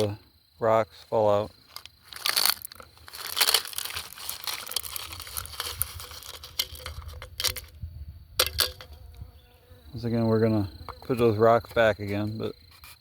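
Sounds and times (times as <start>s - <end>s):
small rocks rattling: 1.6s - 7.8s, 8.4s - 9.0s.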